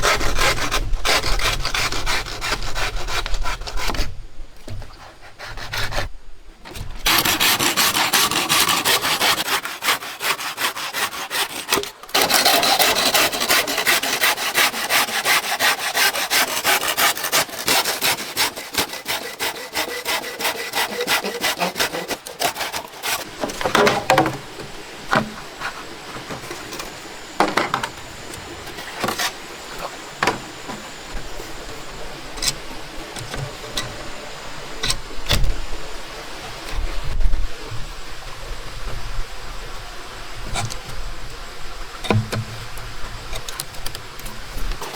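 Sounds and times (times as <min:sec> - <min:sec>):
saw cutting wood: 0:00.0 - 0:04.0, 0:07.0 - 0:33.9
wood knocks and scrapes: 0:22.0 - 0:31.8.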